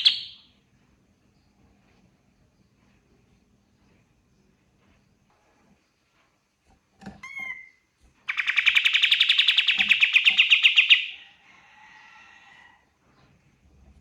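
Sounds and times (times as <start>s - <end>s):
rapid bird trill: 7.4s - 11.2s.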